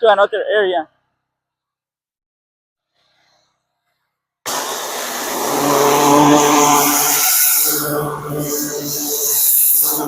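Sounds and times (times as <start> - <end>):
engine hum: 4.5 - 10.0
water spray hissing on tiles: 4.5 - 10.0.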